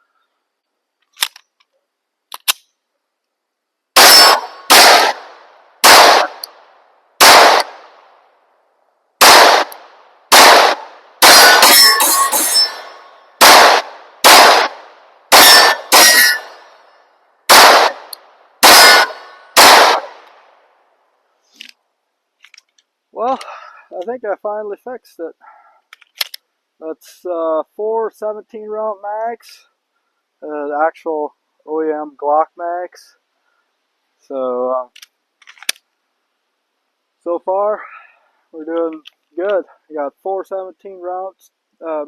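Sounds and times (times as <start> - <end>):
pistol shots: 4.0 - 6.6, 7.2 - 8.0, 9.2 - 16.6, 17.5 - 20.4.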